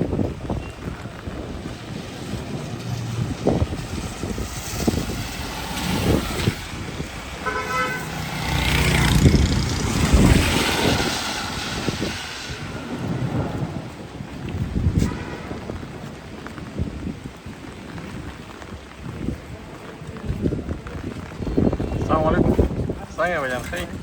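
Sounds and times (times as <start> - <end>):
wind buffeting microphone: 0.0 - 24.0
vehicle passing by: 1.3 - 16.3
vehicle horn toot: 7.4 - 8.2.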